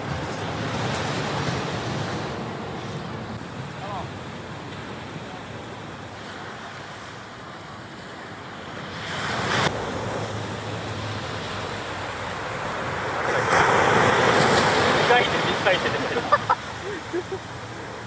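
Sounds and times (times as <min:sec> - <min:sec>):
ocean surf washing on beach: 0:00.0 - 0:18.0.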